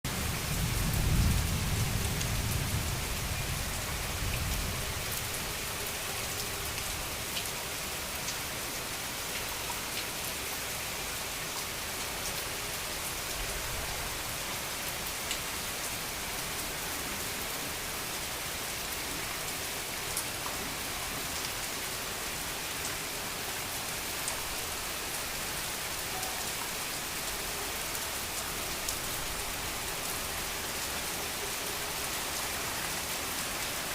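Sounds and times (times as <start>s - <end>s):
heavy rain pouring: 0.0s - 33.9s
thunder rumble: 0.1s - 5.1s.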